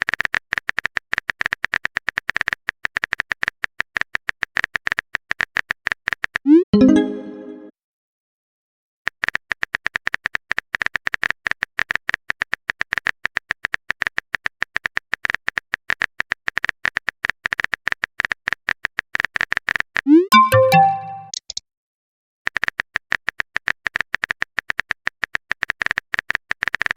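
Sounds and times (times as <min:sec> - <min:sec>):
rising message chime: 0:06.5 - 0:07.7, 0:20.1 - 0:21.3
keyboard typing clicks: 0:20.1 - 0:21.6.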